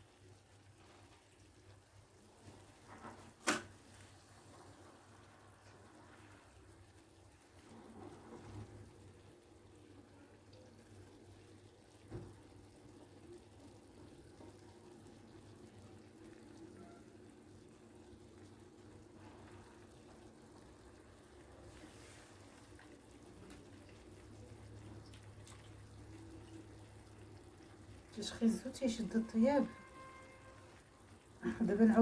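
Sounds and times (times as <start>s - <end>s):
faint steady hum: 3.9s - 32.0s.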